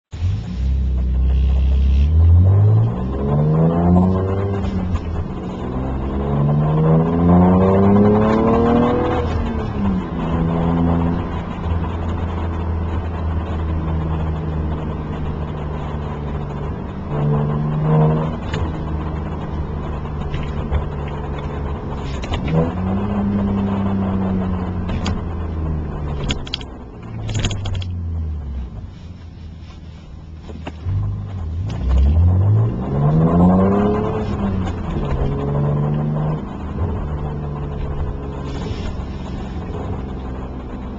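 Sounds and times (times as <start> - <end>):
car engine accelerating: 0.1 - 40.9.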